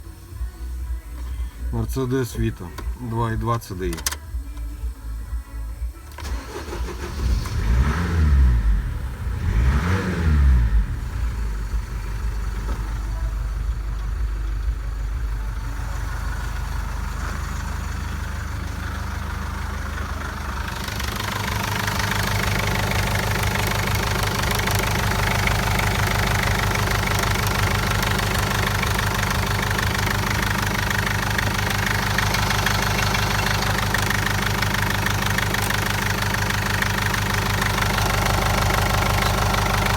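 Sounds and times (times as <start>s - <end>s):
diesel engine idling with clatter: 0.0s - 39.9s
engine revving: 6.1s - 39.9s.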